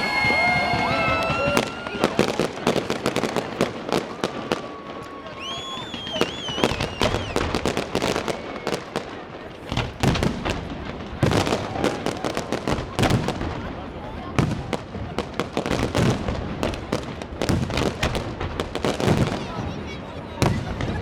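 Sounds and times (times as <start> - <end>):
whistling firework shells: 0.0 - 2.3, 4.1 - 8.8
fireworks bangs and crackling: 0.0 - 21.0.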